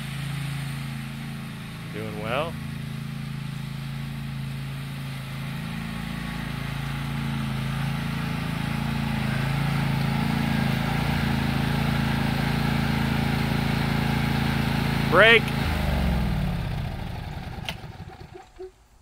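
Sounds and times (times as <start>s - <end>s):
riding lawn mower engine: 0.0s - 19.0s.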